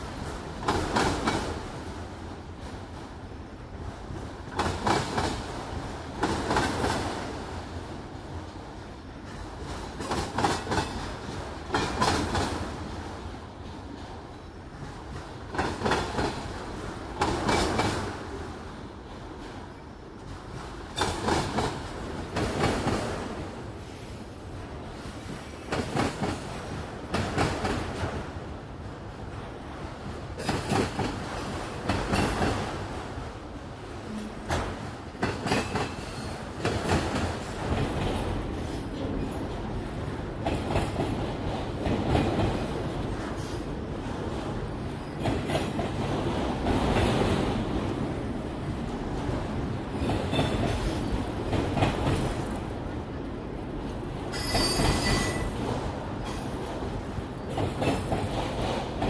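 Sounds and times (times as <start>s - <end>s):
railroad cars rumbling: 0.0s - 59.0s
wheels clacking over rail joints: 15.0s - 18.4s, 30.3s - 33.0s.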